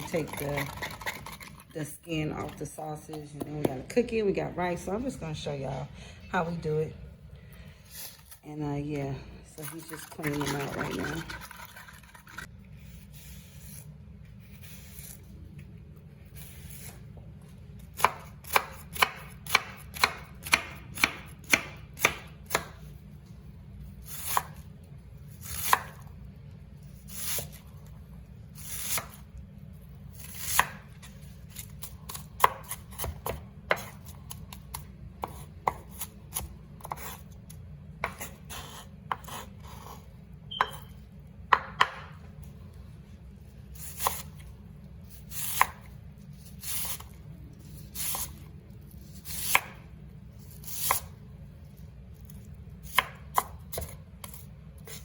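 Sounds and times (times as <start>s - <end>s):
knife chopping on cutting board: 17.9s - 22.9s, 24.1s - 24.6s, 25.4s - 26.0s, 30.2s - 30.8s, 31.5s - 37.2s, 38.0s - 40.0s, 41.5s - 42.2s, 43.8s - 44.3s, 45.3s - 45.9s, 49.2s - 49.8s, 50.5s - 51.1s, 52.8s - 55.0s.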